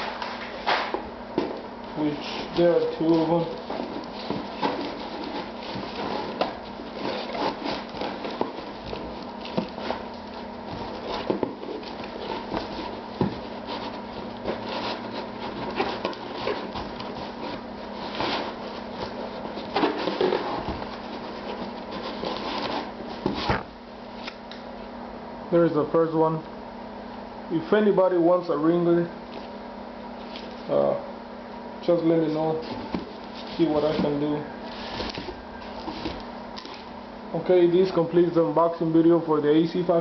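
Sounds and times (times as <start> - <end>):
packaging rustling and scratching: 1.9 - 23.6, 32.4 - 36.9.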